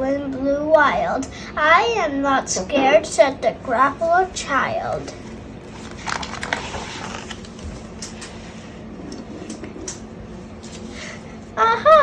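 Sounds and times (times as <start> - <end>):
soft rustling: 3.6 - 11.6.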